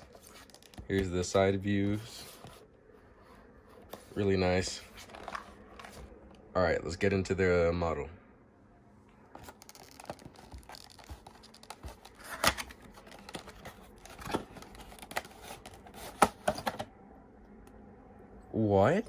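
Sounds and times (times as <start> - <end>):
packaging scraping and rustling: 0.0 - 2.6, 3.8 - 6.1, 9.4 - 16.8.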